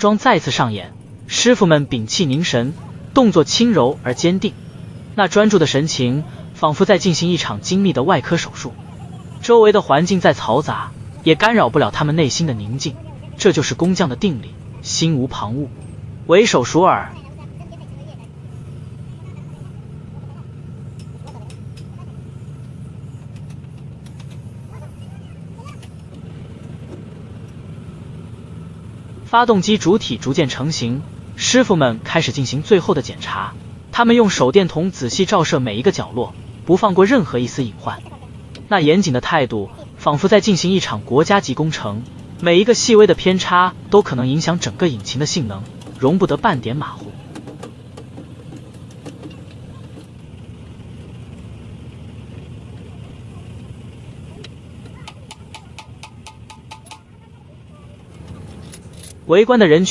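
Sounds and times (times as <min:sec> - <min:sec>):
engine running: 0:00.0 - 0:59.9
motor vehicles rumbling: 0:00.0 - 0:59.9
faint distant voices: 0:51.8 - 0:59.1.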